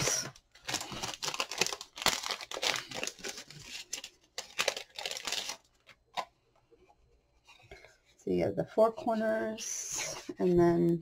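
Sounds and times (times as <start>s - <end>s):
packaging crinkling and rustling: 0.0s - 6.3s.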